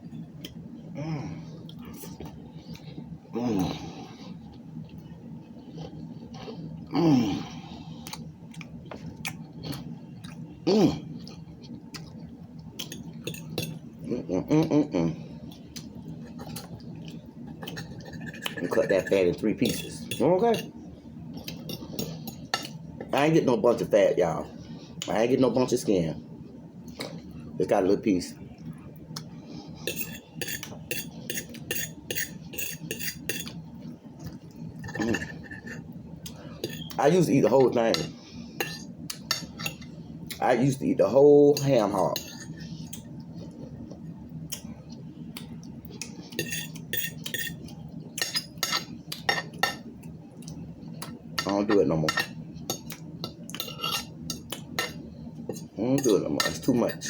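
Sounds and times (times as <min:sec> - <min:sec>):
person chewing food: 0:01.5 - 0:06.9, 0:07.5 - 0:20.0, 0:21.3 - 0:23.1, 0:28.6 - 0:37.0, 0:42.2 - 0:51.6, 0:52.6 - 0:55.8
cutlery scraping against a dish: 0:12.8 - 0:13.8, 0:17.6 - 0:20.7, 0:29.8 - 0:33.6, 0:34.8 - 0:35.8, 0:36.6 - 0:37.0, 0:37.9 - 0:39.9, 0:41.6 - 0:43.0, 0:46.3 - 0:47.6, 0:48.2 - 0:49.8, 0:53.6 - 0:57.0.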